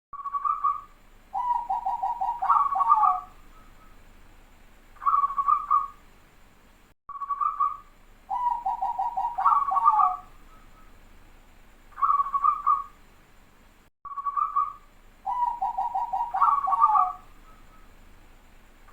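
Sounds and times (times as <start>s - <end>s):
dove cooing: 1.4s - 3.7s, 5.0s - 6.0s, 8.3s - 10.9s, 12.0s - 12.9s, 15.3s - 17.8s.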